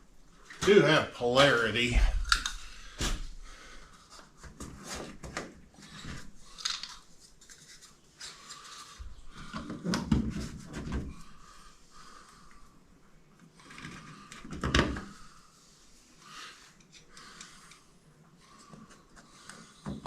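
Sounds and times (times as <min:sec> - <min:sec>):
small clicks and scrapes: 0:04.1 - 0:09.9, 0:13.4 - 0:14.9, 0:16.7 - 0:17.9.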